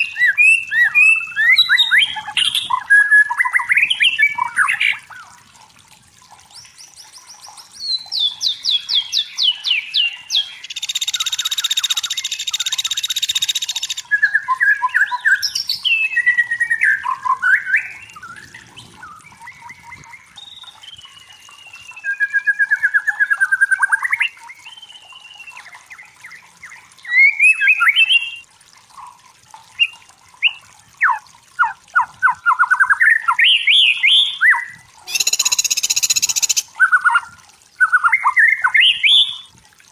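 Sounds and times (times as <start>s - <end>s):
bird song with whistled trills: 0.0s - 5.2s, 6.5s - 28.4s, 29.8s - 39.5s
harsh buzzing bird chatter: 35.1s - 36.7s.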